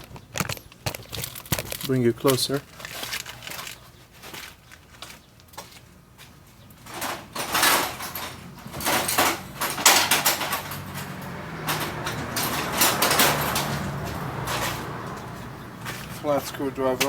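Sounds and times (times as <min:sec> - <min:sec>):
sharp knocks and rattles: 0:00.0 - 0:03.8, 0:06.8 - 0:16.2
metal tools clicking and scraping: 0:00.0 - 0:04.0, 0:06.8 - 0:15.3.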